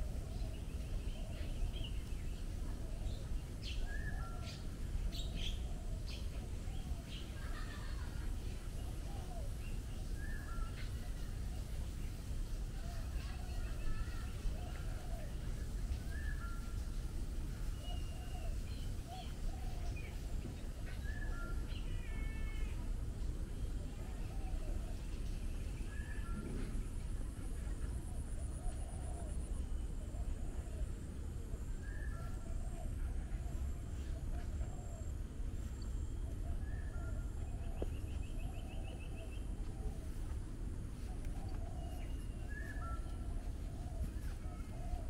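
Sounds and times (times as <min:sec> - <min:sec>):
steady low rumble: 0:23.0 - 0:45.0
birds whistling calls: 0:35.8 - 0:40.2, 0:41.0 - 0:45.0.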